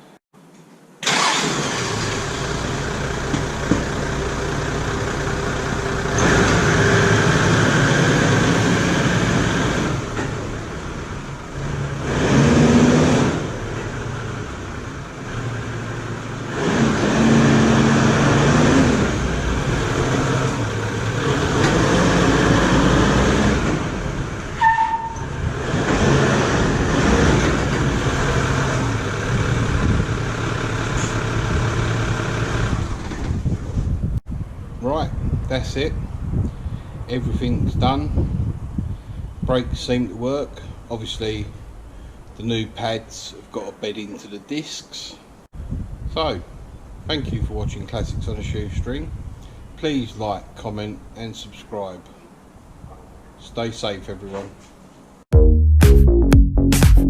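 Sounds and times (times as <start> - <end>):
brake squeak: 24.6 - 25.4.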